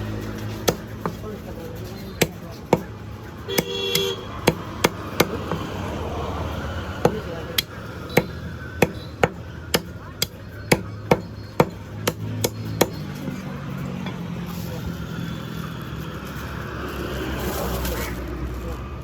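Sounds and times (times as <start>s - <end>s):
low background din: 0.0s - 16.8s
cleaver chopping chicken: 0.3s - 1.2s, 2.0s - 5.8s, 7.0s - 13.2s.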